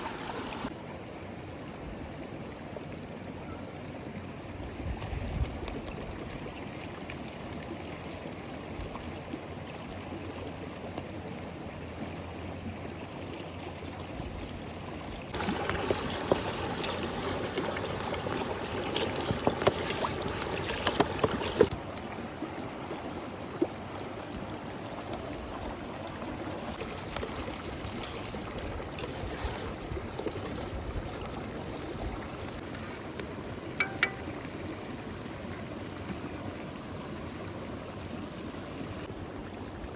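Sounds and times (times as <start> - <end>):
river water flowing: 0.0 - 0.7, 14.8 - 39.9.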